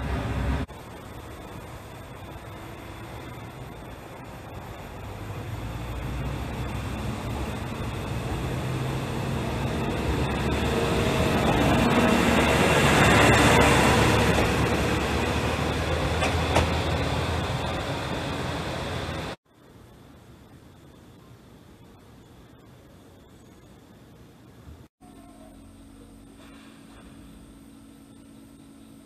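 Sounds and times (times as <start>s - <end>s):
diesel railcar engine: 0.0s - 22.4s, 24.5s - 29.0s
wheels clicking on rails: 2.6s - 19.4s.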